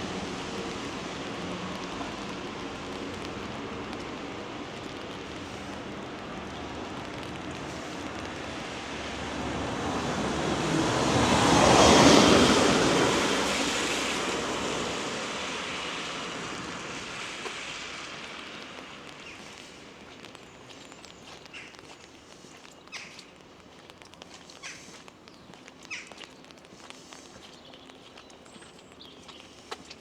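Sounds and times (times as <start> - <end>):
tyre hiss on wet road: 0.0 - 30.0.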